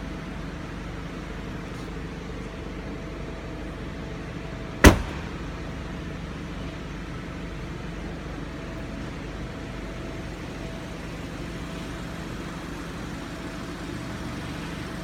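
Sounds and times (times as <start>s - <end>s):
car engine idling: 0.0s - 15.0s
sharp knock: 4.8s - 5.7s.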